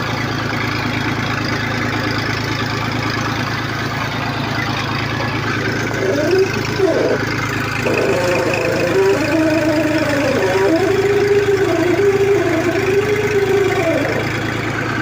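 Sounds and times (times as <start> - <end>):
tractor engine running: 0.0 - 15.0
high wavering tone: 5.2 - 14.5.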